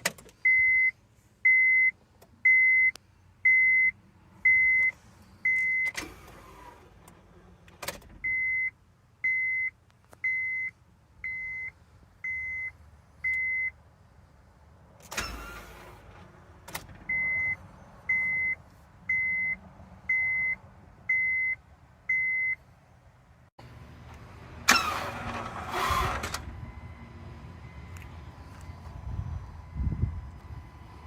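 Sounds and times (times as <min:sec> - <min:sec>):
dashboard warning chime beeps: 0:00.4 - 0:06.0, 0:08.2 - 0:13.8, 0:17.1 - 0:22.6
car engine failing to start: 0:05.8 - 0:08.3, 0:15.1 - 0:17.5, 0:24.6 - 0:26.8.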